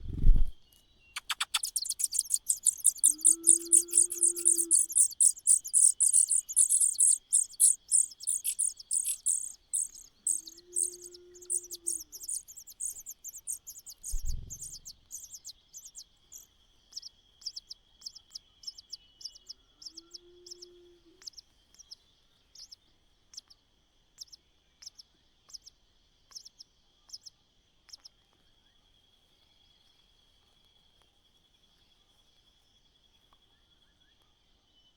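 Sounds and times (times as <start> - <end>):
nestling birds chirping: 1.0 - 23.6
high insect drone: 1.6 - 15.4.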